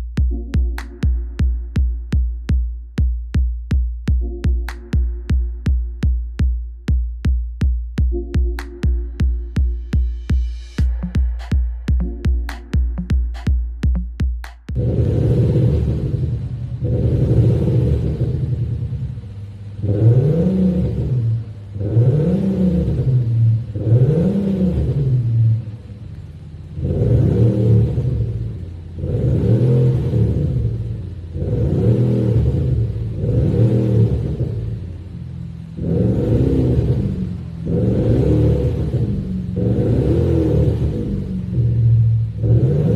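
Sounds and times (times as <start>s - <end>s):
synthetic exhaust note revving: 8.0s - 25.9s, 26.8s - 42.9s.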